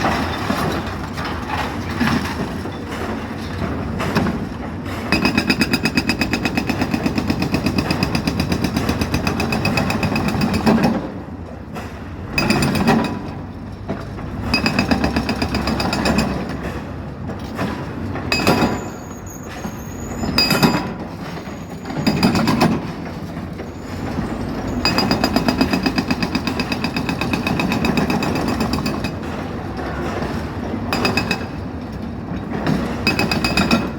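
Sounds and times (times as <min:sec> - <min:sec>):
hydraulic breaker hammering: 0:24.8 - 0:29.5, 0:32.4 - 0:33.9.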